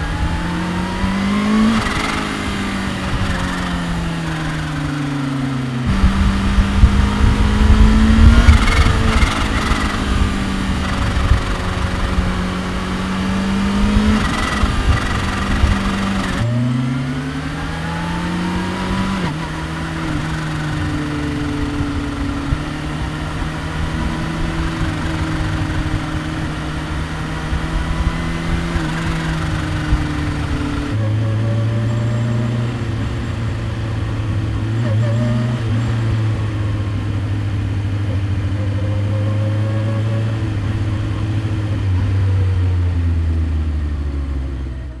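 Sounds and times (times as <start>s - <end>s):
motorcycle engine shifting gears: 0.0s - 45.0s.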